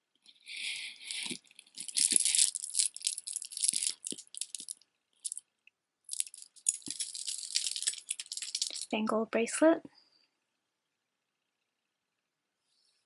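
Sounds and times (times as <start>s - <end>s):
necklace beads clicking and rattling: 0.5s - 5.4s, 6.1s - 9.0s.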